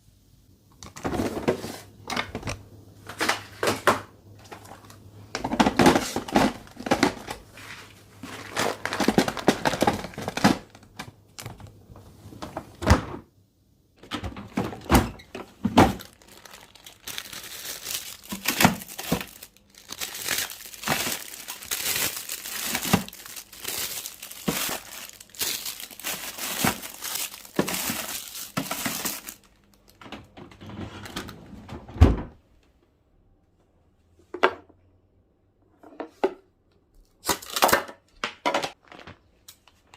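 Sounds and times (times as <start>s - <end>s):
packaging crinkling: 4.4s - 11.8s, 14.5s - 30.0s
containers clicking and knocking: 8.3s - 11.7s.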